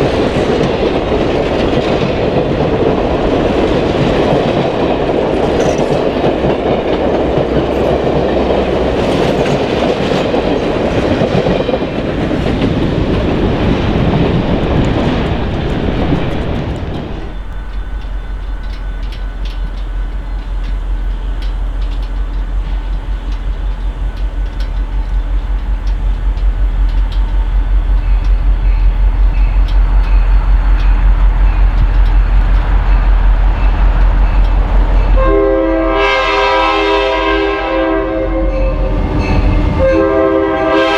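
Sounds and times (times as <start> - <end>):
train wheels clattering on rails: 0.0 - 37.9
deep pulsing low rumble: 14.1 - 23.0.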